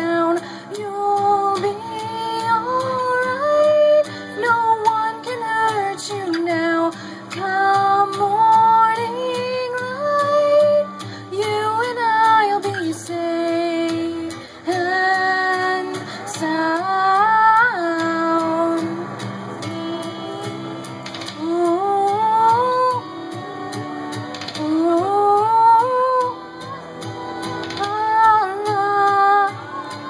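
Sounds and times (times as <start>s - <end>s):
acoustic guitar: 0.0s - 30.0s
women singing in harmony: 0.0s - 30.0s.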